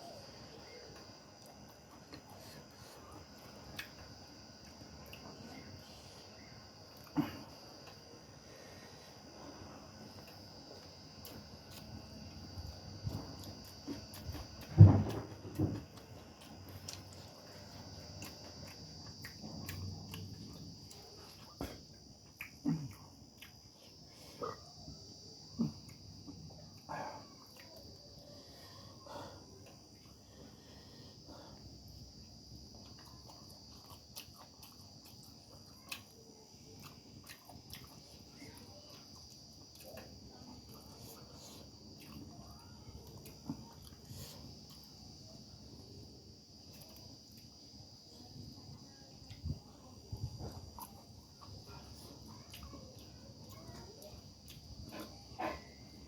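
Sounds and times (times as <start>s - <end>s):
faint high whine: 0.0s - 56.0s
chewing and mouth noises: 9.2s - 28.1s, 31.5s - 45.2s, 50.3s - 55.9s
low thump or crunch: 14.6s - 15.9s
person chewing and biting: 32.6s - 36.2s.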